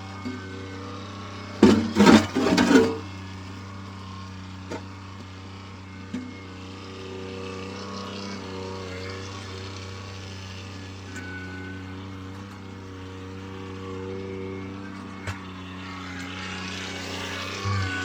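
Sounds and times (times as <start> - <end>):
diesel tractor engine running: 0.0 - 7.0.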